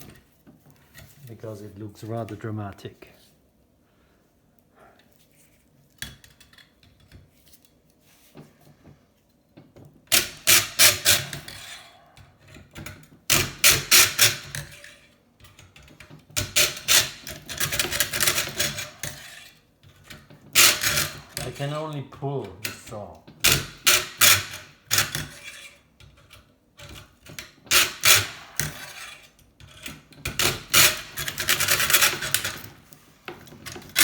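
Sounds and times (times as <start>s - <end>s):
hand saw cutting metal tube: 10.2s - 11.9s, 13.4s - 15.1s, 16.4s - 19.6s, 20.6s - 21.9s, 23.5s - 25.8s, 27.7s - 32.7s.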